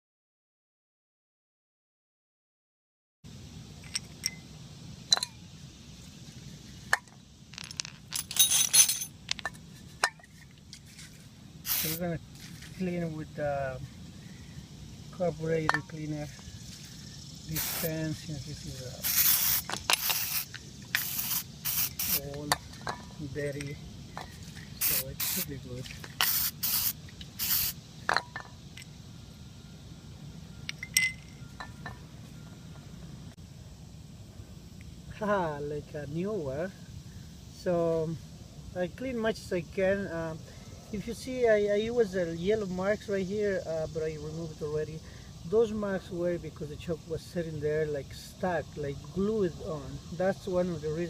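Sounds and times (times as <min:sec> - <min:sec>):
metal parts clinking: 0:03.8 - 0:04.4, 0:07.5 - 0:10.4
aerosol spraying: 0:11.6 - 0:12.8, 0:16.7 - 0:22.4, 0:24.3 - 0:27.8.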